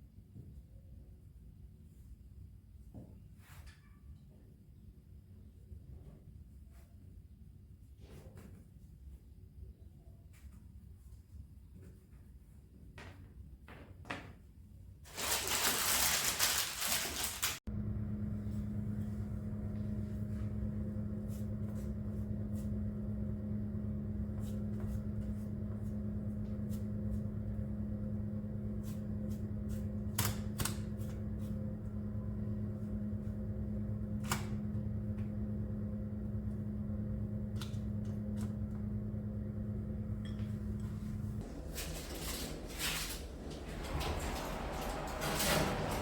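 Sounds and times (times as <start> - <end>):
electric appliance hum: 15.1 - 46.0.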